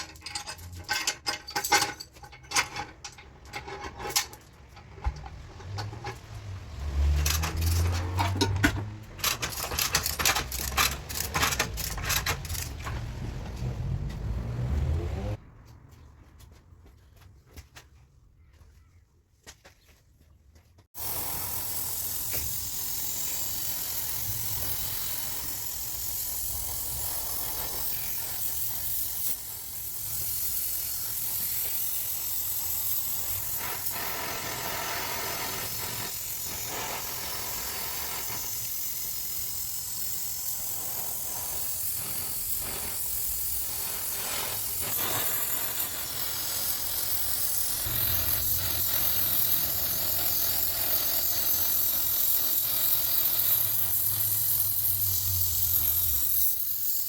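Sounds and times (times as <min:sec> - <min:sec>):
loud steady hiss: 0:21.0 - 0:57.0.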